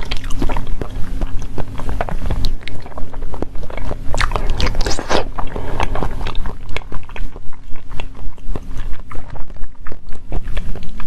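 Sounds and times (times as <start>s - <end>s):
wet bites and chewing: 0.0s - 11.0s.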